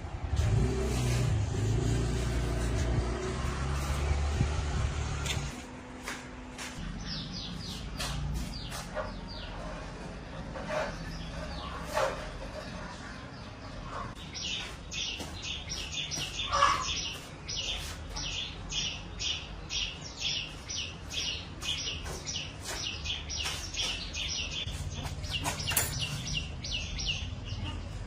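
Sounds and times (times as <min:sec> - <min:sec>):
bird chirping: 0:06.8 - 0:28.0.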